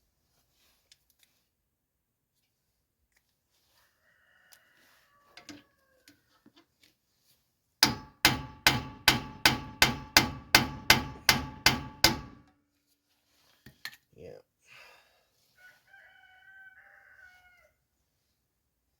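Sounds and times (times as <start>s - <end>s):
hammer striking metal tool: 7.8s - 12.5s.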